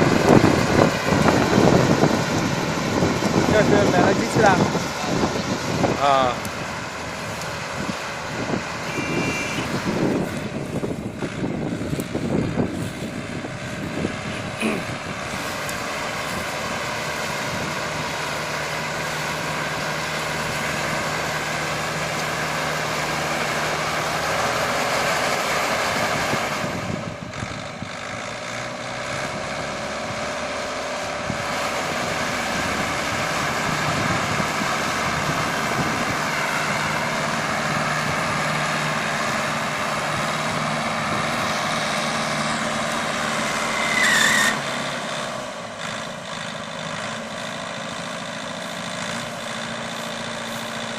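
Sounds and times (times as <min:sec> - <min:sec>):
tractor engine running: 0:00.0 - 0:50.9
short squeal bending in pitch: 0:43.5 - 0:44.7.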